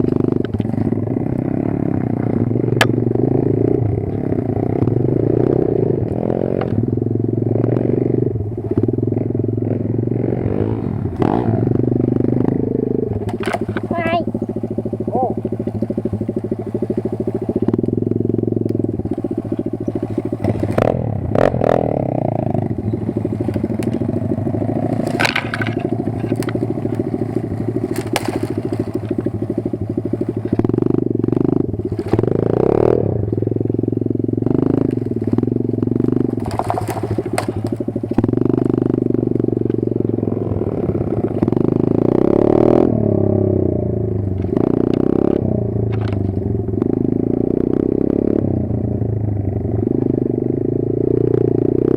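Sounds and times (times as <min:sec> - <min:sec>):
pit bike engine revving: 0:00.0 - 0:51.9
knocks and clatter: 0:24.8 - 0:29.4, 0:36.1 - 0:38.4.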